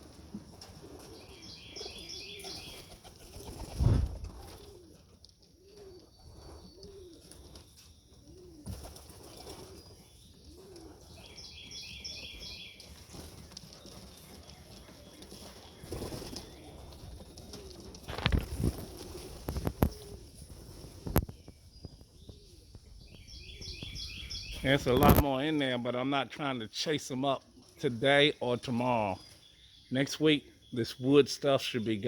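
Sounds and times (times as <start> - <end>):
pigeons cooing: 0.0 - 25.7
wing flapping: 2.4 - 5.0, 13.0 - 22.0, 24.8 - 25.2.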